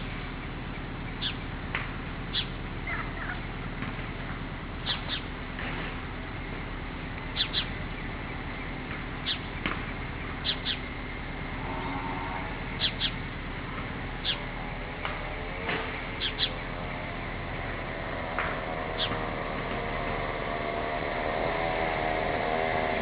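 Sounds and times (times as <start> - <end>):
short high bird chirps: 2.3 - 2.5, 7.4 - 7.7.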